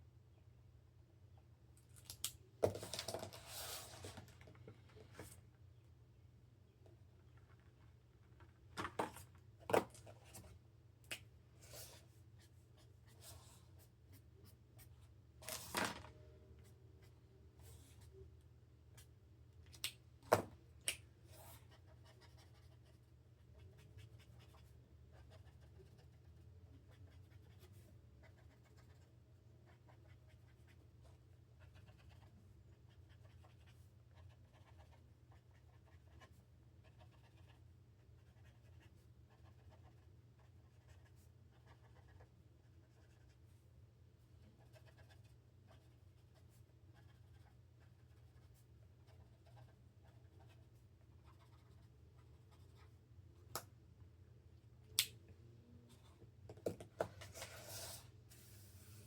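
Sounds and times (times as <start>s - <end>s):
pen scratching on paper: 21.4s - 30.8s, 31.6s - 32.3s, 32.9s - 37.6s, 38.2s - 42.3s, 42.9s - 43.3s, 44.6s - 52.9s.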